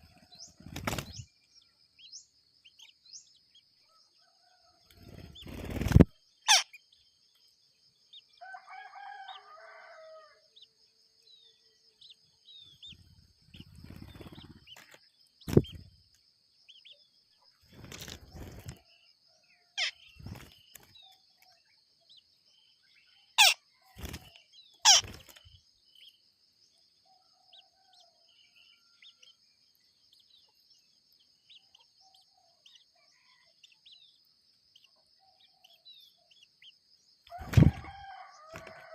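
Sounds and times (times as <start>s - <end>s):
rooster crowing: 8.4s - 10.5s, 37.3s - 38.9s.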